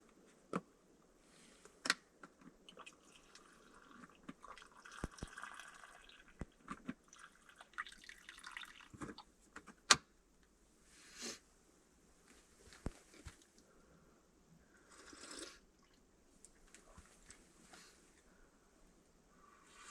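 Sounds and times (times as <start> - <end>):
soft hiss: 10.4 - 19.9.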